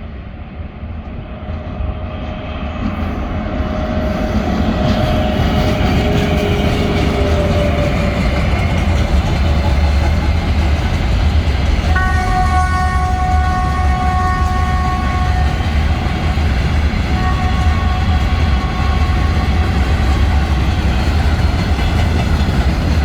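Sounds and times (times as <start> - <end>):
freight train rail rumble: 0.0 - 23.0.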